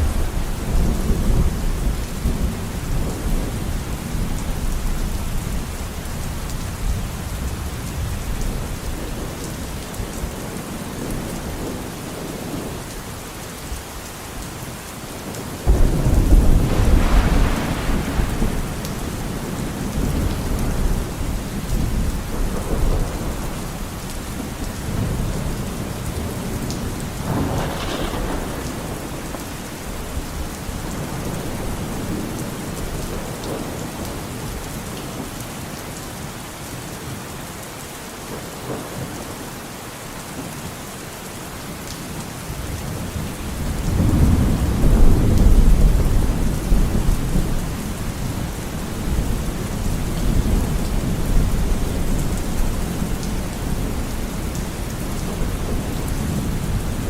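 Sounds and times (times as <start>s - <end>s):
rolling thunder: 0.0s - 8.6s, 15.6s - 34.6s, 42.9s - 57.0s
steady rain: 0.0s - 57.0s
loud thunderclap: 15.6s - 23.6s, 26.8s - 33.6s, 43.6s - 47.6s.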